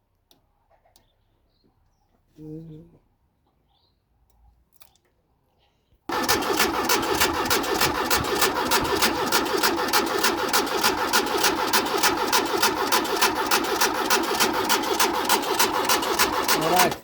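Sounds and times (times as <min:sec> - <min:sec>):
car engine cranking by starter motor: 0:06.1 - 0:17.0.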